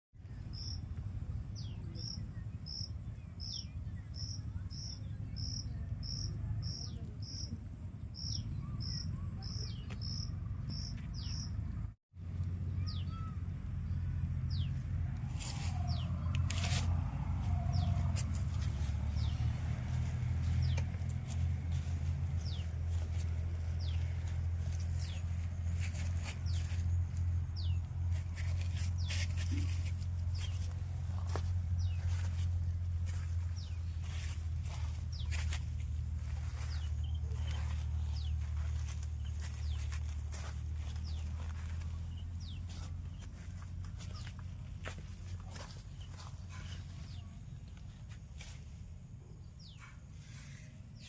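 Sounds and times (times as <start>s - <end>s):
insects chirping: 0.2s - 11.5s, 12.2s - 51.0s
low rumble: 10.1s - 46.5s.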